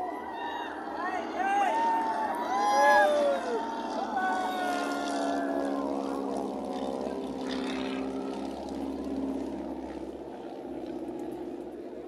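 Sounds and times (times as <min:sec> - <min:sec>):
aircraft engine drone: 0:00.0 - 0:12.0.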